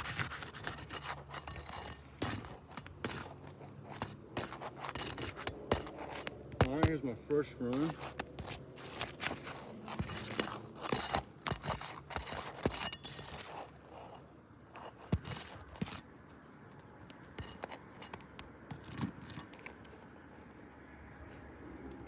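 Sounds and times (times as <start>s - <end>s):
roof shingles scraping and crackling: 0.0s - 16.0s.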